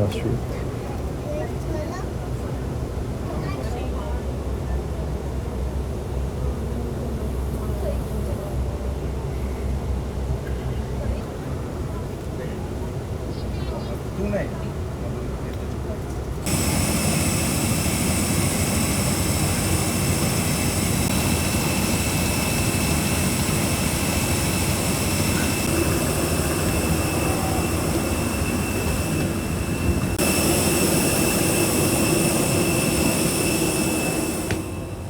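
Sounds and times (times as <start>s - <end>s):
jet aircraft engine whine: 16.4s - 35.0s.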